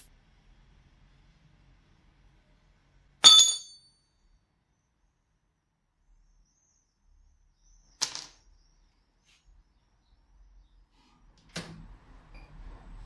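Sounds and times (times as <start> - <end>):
sharp metallic clink: 3.2 - 3.9.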